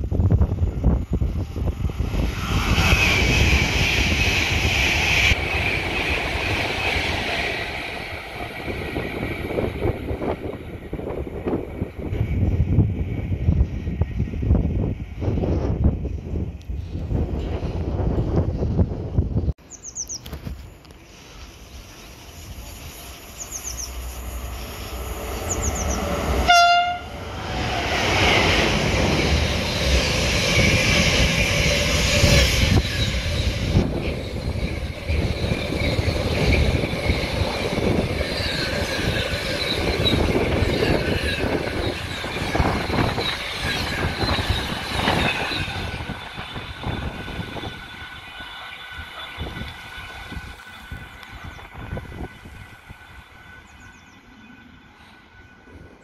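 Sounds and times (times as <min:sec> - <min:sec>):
train passing at speed: 0:00.0 - 0:56.0
train horn blast: 0:26.4 - 0:27.2.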